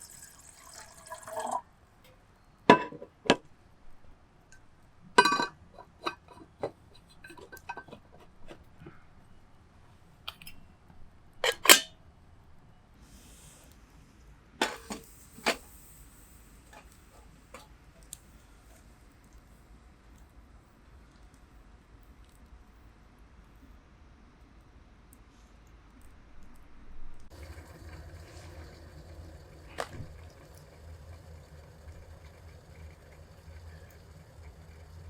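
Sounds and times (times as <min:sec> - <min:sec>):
metal kettle parts clinking: 0:02.7 - 0:03.4, 0:05.2 - 0:08.6, 0:11.4 - 0:11.9, 0:14.6 - 0:15.6.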